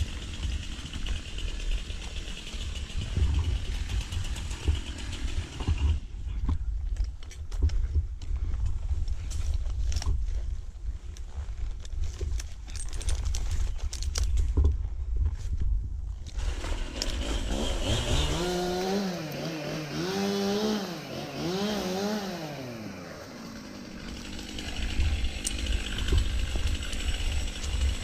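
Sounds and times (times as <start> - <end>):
chainsaw revving: 0.0 - 6.1, 16.3 - 28.0.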